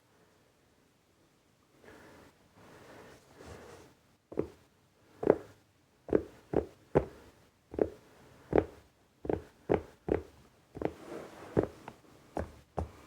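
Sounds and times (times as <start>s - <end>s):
soft rustle: 1.9s - 4.6s, 10.8s - 13.0s.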